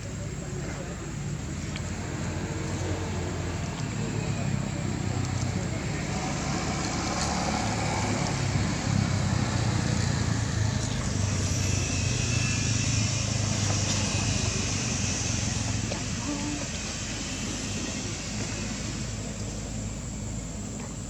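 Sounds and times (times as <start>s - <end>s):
outdoor background noise: 0.0s - 21.0s
motor humming: 0.8s - 20.7s.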